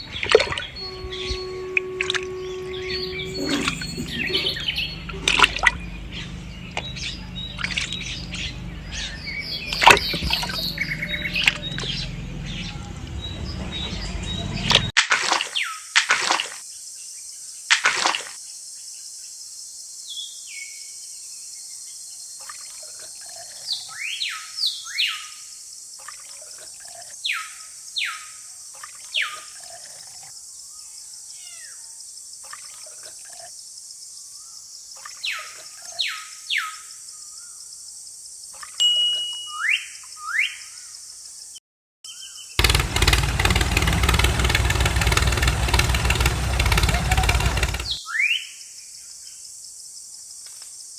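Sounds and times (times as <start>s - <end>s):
low steady hum: 0.0s - 14.6s
birds chirping: 0.0s - 14.9s, 42.1s - 48.2s
noisy wash: 42.6s - 48.0s.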